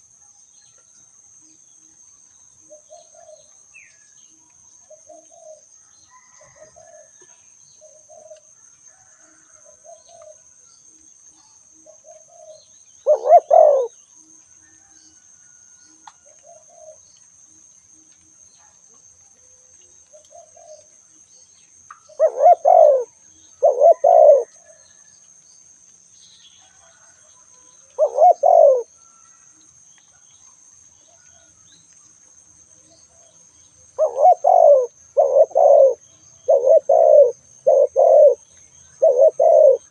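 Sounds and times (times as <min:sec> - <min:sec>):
doves cooing: 0:11.9 - 0:14.0, 0:20.1 - 0:20.9, 0:22.1 - 0:24.8, 0:28.0 - 0:28.9, 0:34.0 - 0:39.9.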